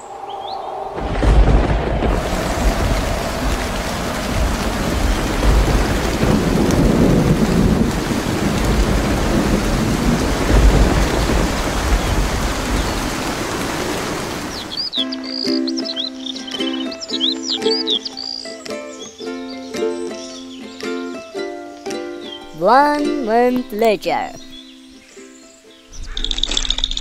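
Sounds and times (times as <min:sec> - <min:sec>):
thunder rumbling: 0:00.0 - 0:14.9
heavy rain pouring: 0:00.3 - 0:15.0.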